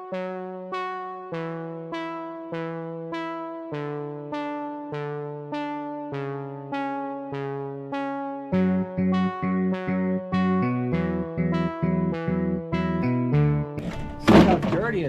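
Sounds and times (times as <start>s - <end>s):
synth playing evenly spaced notes: 0.0s - 14.2s
bass line: 8.6s - 15.0s.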